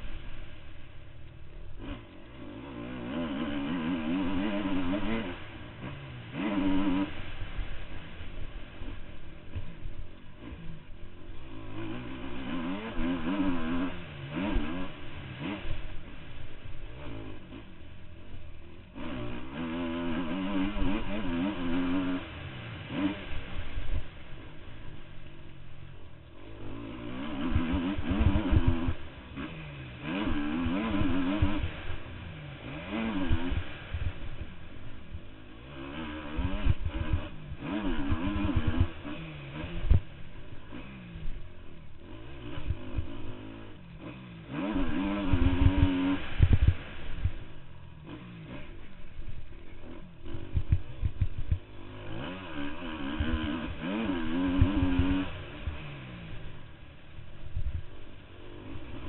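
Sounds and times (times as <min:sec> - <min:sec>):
motorbike engine revving: 0:00.0 - 0:59.0
low thuds: 0:49.2 - 0:51.8.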